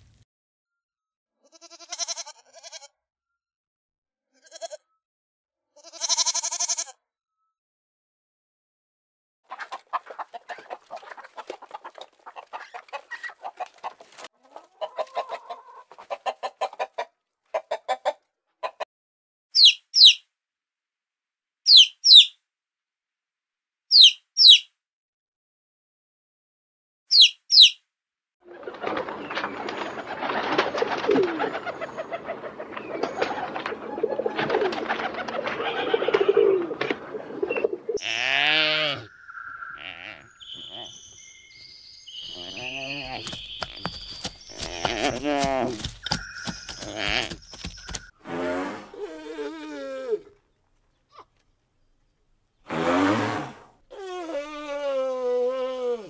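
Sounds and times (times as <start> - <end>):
short high falling bird calls: 23.9 - 24.7, 27.1 - 27.8, 38.8 - 48.1
rapid pulsed bird calls: 27.1 - 27.8, 39.0 - 48.1
dense bird chorus: 39.0 - 48.1.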